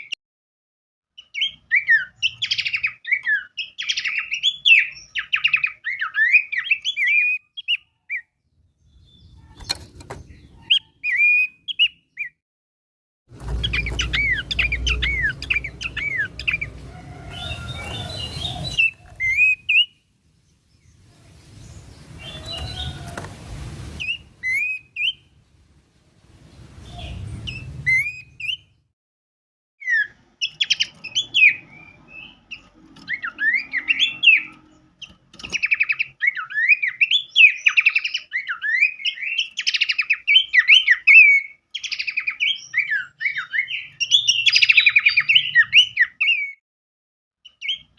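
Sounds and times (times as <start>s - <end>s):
songbird chirping and singing: 1.2s - 12.4s, 13.4s - 25.4s, 26.2s - 28.9s, 29.8s - 46.6s, 47.4s - 47.9s
bursts of hiss: 21.0s - 28.1s.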